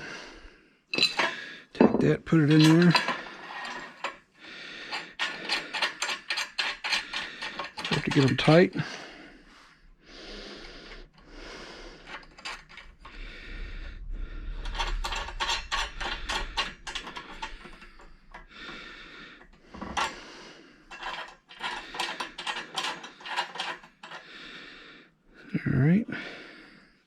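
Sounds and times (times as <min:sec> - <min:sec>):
metal hardware clicking: 0:01.0 - 0:04.2, 0:04.9 - 0:08.6.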